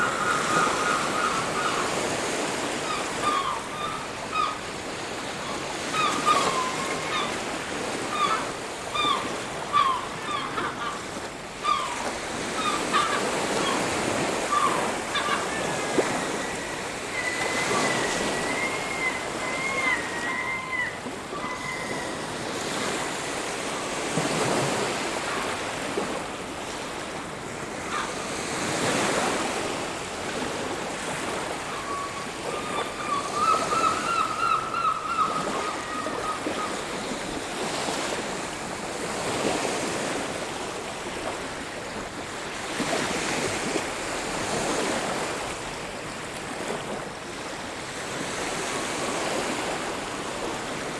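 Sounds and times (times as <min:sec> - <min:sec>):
bird wavering call: 0:00.0 - 0:04.7, 0:05.4 - 0:23.5, 0:31.6 - 0:37.0
ocean waves breaking: 0:00.0 - 0:50.9.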